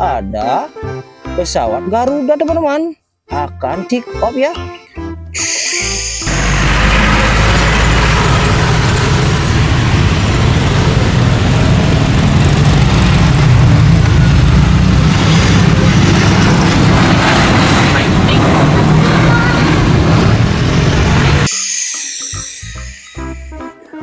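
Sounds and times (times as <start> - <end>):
jet engine roar: 5.4 - 21.6
deep rumble: 6.2 - 21.5.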